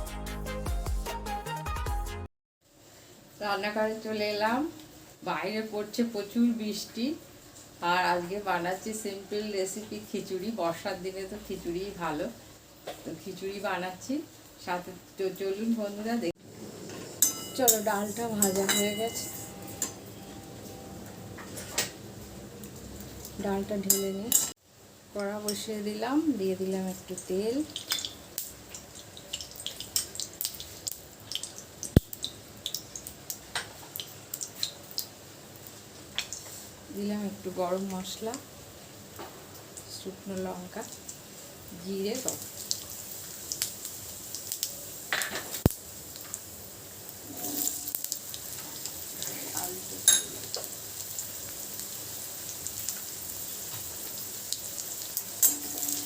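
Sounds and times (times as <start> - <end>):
hot oil popping and crackling: 26.9 - 36.6, 37.8 - 56.0.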